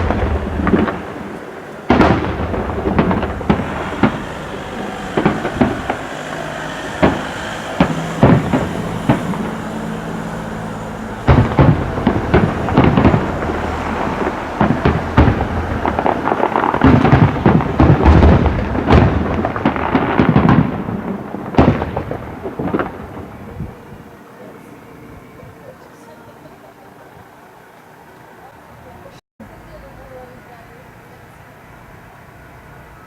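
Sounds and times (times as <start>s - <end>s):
firework shells bursting: 0.0s - 24.1s.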